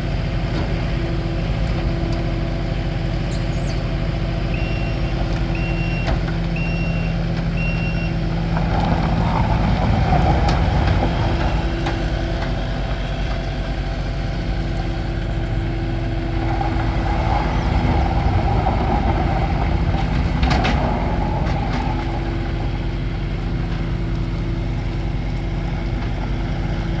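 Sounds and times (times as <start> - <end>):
diesel engine running: 0.0 - 27.0
backup alarm beeping: 4.5 - 8.1.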